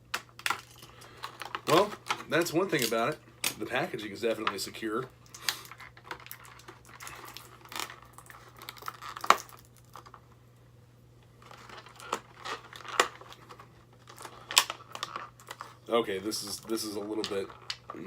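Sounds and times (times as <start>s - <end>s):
plastic packaging crinkling: 0.4s - 3.1s, 5.2s - 10.2s, 11.4s - 18.0s.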